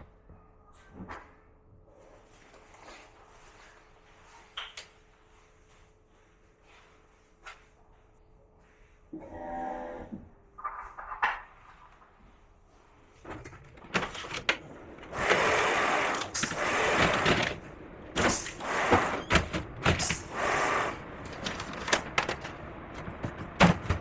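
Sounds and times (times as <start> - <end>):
plastic parts clicking and knocking: 21.2 - 24.0.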